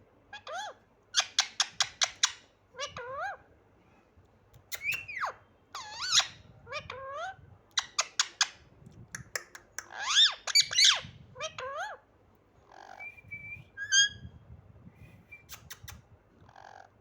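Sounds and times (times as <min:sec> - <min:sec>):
parrot squawking and chirping: 0:00.3 - 0:03.5, 0:04.7 - 0:08.7, 0:09.8 - 0:13.2, 0:13.8 - 0:14.3, 0:16.4 - 0:17.0.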